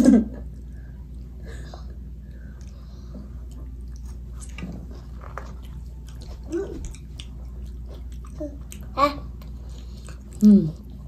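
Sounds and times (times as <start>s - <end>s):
wet chewing: 2.5s - 11.0s.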